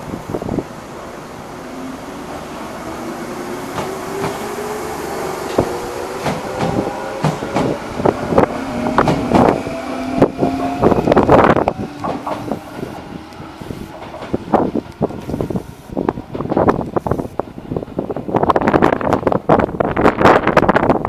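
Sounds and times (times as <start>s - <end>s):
electric train motor whine: 1.2s - 17.4s
wheels clacking over rail joints: 3.7s - 4.7s, 5.4s - 15.4s, 16.0s - 17.0s.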